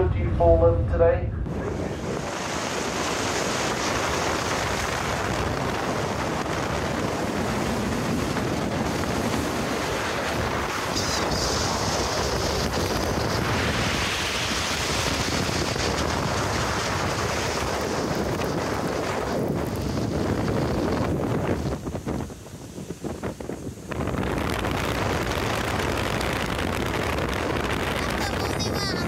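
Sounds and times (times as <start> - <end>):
rushing wind and water: 0.0 - 29.0
wind buffeting microphone: 0.0 - 29.0.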